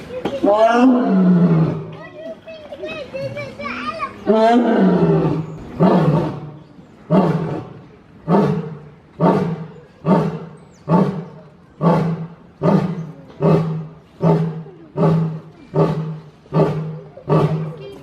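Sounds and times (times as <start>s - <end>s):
lion roaring: 0.5s - 1.9s, 4.3s - 17.8s
lion grunting: 4.3s - 17.8s.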